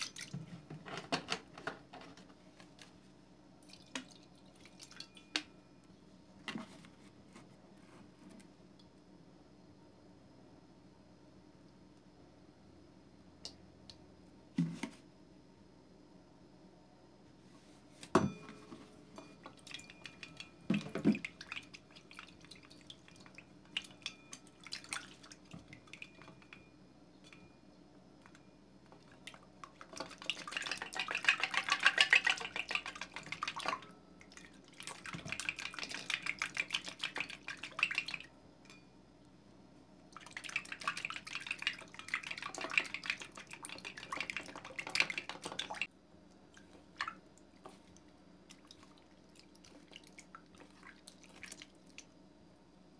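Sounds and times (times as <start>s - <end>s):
stick stirring slime in metal bowl: 29.8s - 33.9s.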